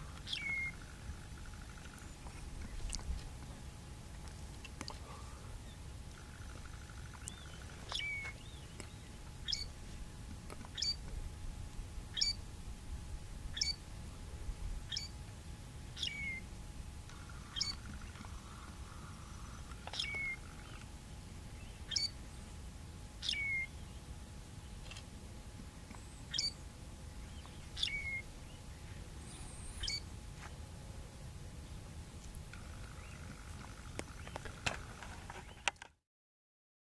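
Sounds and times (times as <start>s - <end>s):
steady low rumble: 0.0s - 35.0s
bird repeating short call: 27.8s - 28.2s, 29.8s - 30.0s.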